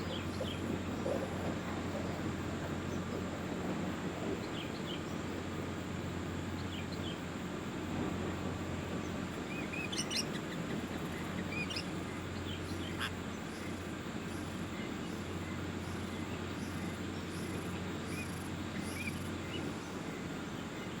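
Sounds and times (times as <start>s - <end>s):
low background noise: 0.0s - 21.0s
small birds chirping: 9.5s - 21.0s.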